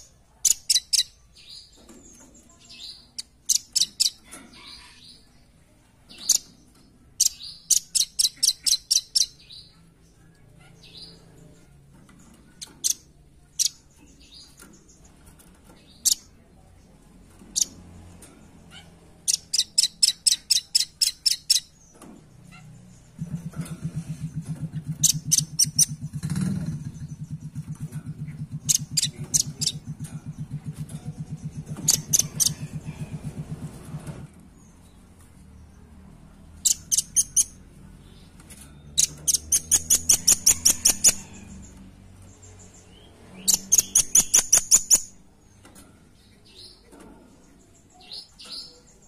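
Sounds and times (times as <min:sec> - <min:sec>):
low pulsing hum: 0:22.9 - 0:34.3.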